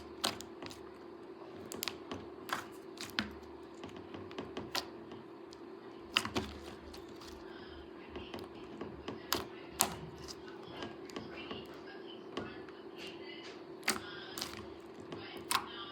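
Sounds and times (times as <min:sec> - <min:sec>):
slime clicks and sticky pops: 0:00.0 - 0:00.8, 0:13.8 - 0:14.7.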